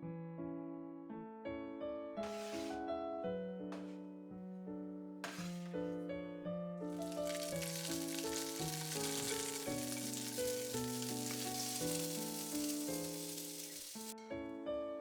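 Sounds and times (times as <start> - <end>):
soft piano music: 1.8 - 15.0
food sizzling in a pan: 2.2 - 2.7, 5.2 - 5.7, 7.0 - 14.2.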